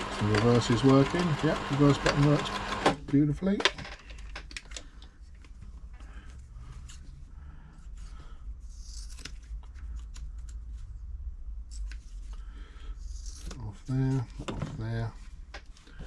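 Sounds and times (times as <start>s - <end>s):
sewing machine hum: 0.0s - 3.0s.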